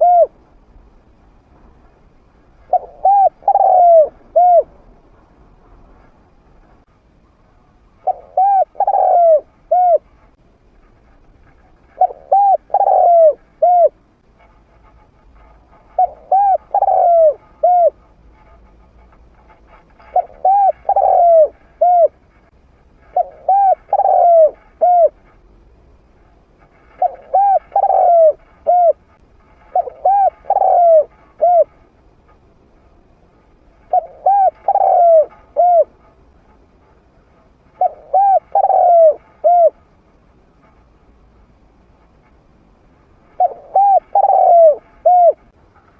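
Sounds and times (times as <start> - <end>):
dove cooing: 0.0 - 0.4, 2.6 - 4.8, 8.0 - 10.2, 11.8 - 14.0, 15.4 - 18.1, 20.0 - 22.2, 23.0 - 25.3, 26.7 - 31.8, 33.8 - 36.2, 37.7 - 39.8, 43.3 - 45.6.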